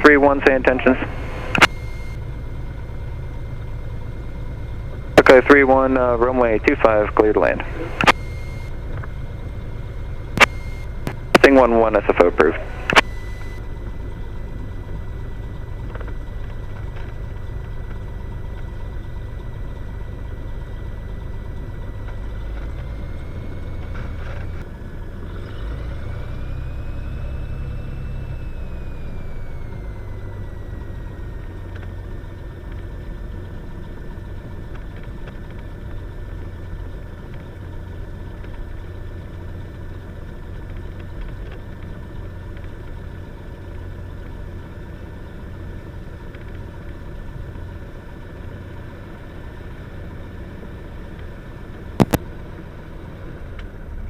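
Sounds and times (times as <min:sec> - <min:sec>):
thin whine: 0:00.0 - 0:38.0
piston aircraft engine droning: 0:00.0 - 0:54.0.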